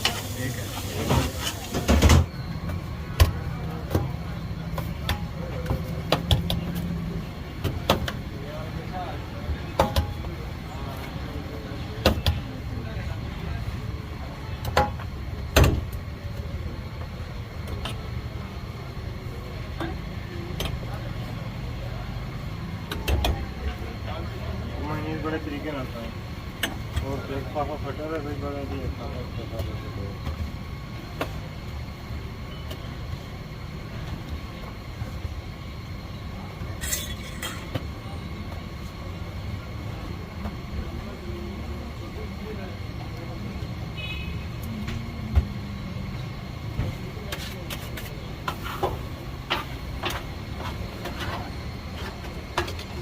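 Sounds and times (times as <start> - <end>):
harsh hissing scrapes: 0.0 - 2.0
faint voices: 0.0 - 53.0.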